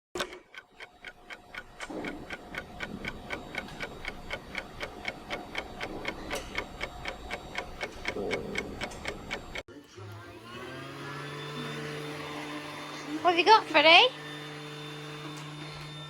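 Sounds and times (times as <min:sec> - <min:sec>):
rapid ticking: 0:00.2 - 0:09.7.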